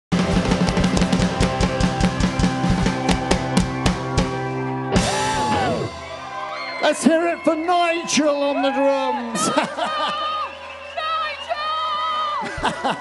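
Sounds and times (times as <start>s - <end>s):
fast drum strokes: 0.1s - 4.4s
live band music: 0.1s - 7.7s.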